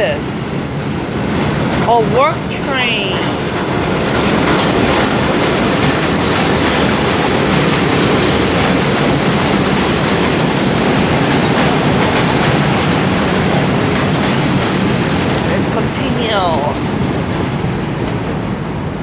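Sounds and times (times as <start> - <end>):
train wheels on rails: 0.0 - 19.0
wheels clicking over rail joints: 2.8 - 15.4.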